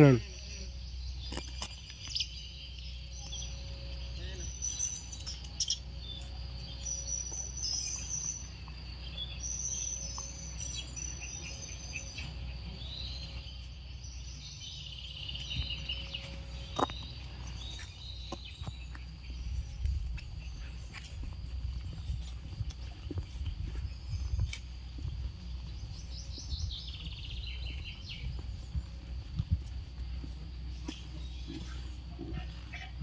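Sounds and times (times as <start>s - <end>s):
low outdoor rumble: 0.0s - 33.0s
small birds chirping: 0.0s - 33.0s.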